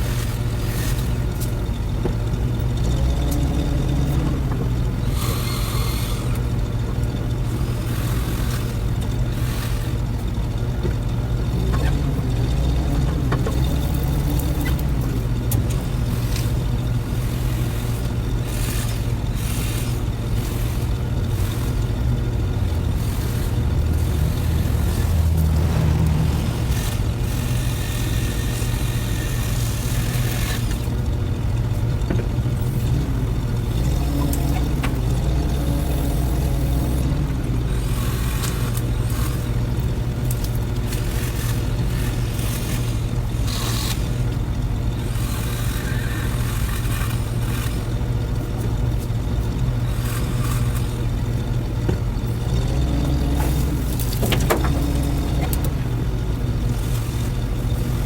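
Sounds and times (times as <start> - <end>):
engine droning: 0.0 - 58.0
faint clicks and scrapes: 0.0 - 58.0.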